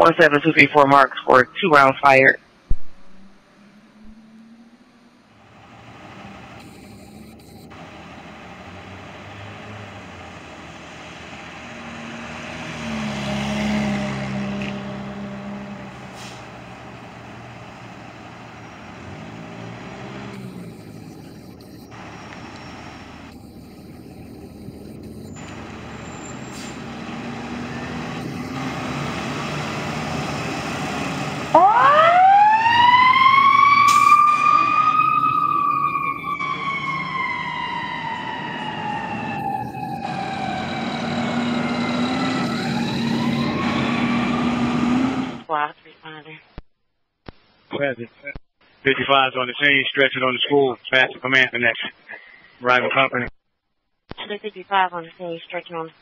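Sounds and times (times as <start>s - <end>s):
diesel engine rumbling: 0.0s - 45.5s
siren wailing: 3.2s - 10.2s, 18.4s - 45.5s.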